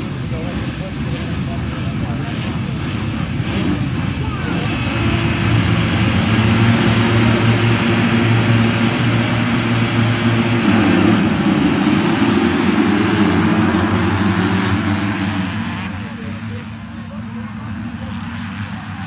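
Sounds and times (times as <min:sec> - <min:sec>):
motocross bikes at full throttle: 0:00.0 - 0:19.0.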